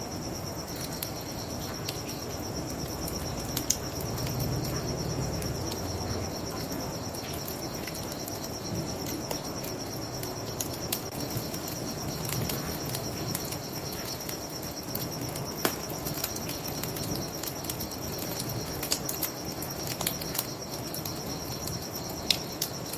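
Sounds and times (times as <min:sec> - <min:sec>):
crickets chirping: 0:00.0 - 0:22.9
bonfire crackling and popping: 0:00.5 - 0:22.9.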